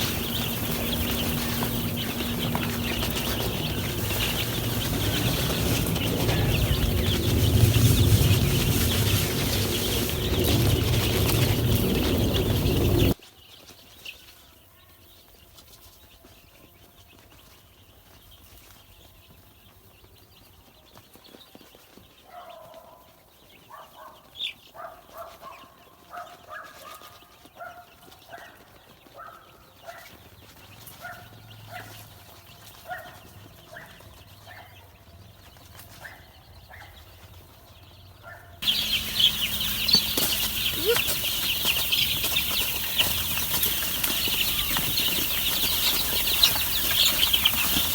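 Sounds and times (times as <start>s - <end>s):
chickens clucking: 0.0s - 13.2s, 38.2s - 47.9s
chicks cheeping: 0.0s - 47.9s.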